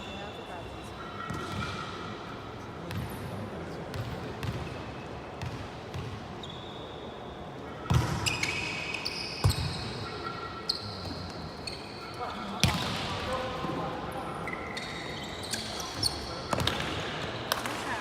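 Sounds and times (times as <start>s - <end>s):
sneakers squeaking on court: 3.9s - 7.1s, 7.8s - 13.3s, 14.4s - 17.6s.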